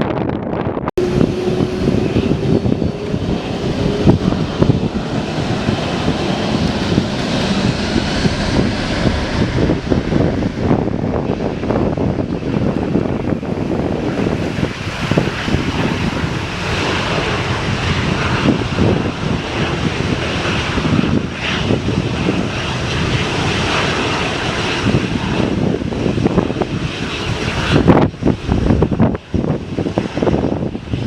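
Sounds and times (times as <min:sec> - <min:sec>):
airplane engines running: 0:00.0 - 0:31.0
wind buffeting microphone: 0:00.0 - 0:31.0.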